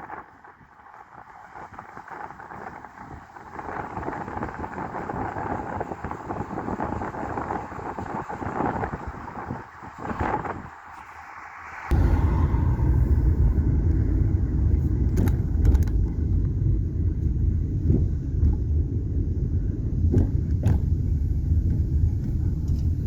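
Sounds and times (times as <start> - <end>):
car road and engine rumble: 9.0 - 23.0.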